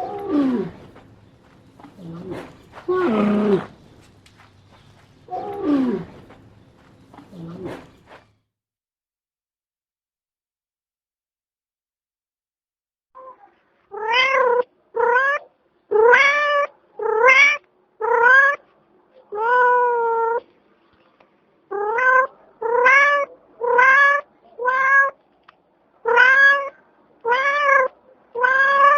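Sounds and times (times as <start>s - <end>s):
cat meowing: 13.2s - 18.6s, 19.3s - 20.4s, 21.7s - 25.2s, 26.0s - 28.9s.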